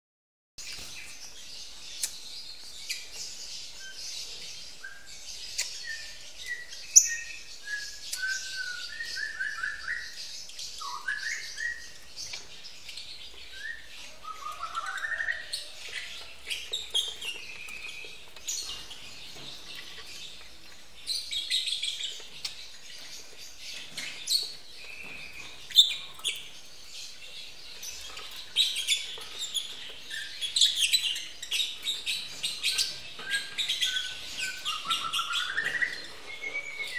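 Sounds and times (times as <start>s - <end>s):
lovebirds chirping and chattering: 0.6s - 36.9s
lower whistled bird notes: 5.8s - 10.2s, 32.7s - 36.9s.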